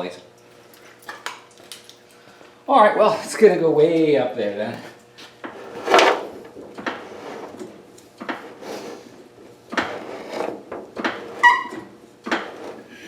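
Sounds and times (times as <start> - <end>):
equipment clunking and scraping: 4.8 - 13.0
short high squeak: 11.4 - 11.8.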